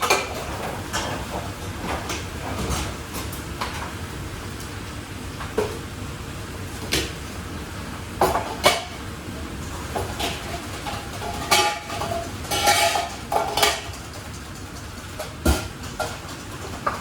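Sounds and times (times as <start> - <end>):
pots and pans clattering: 0.0 - 4.0, 8.2 - 17.0.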